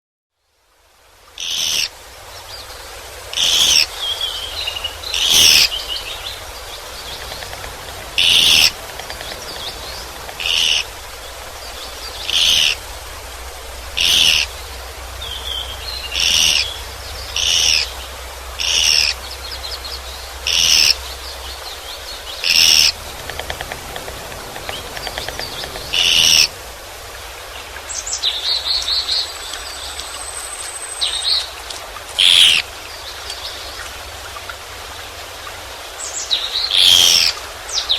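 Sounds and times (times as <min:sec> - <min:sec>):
woodpecker calling: 0:03.4 - 0:12.9, 0:14.0 - 0:14.6, 0:15.3 - 0:18.0, 0:18.6 - 0:19.8, 0:20.4 - 0:27.1, 0:32.2 - 0:32.6.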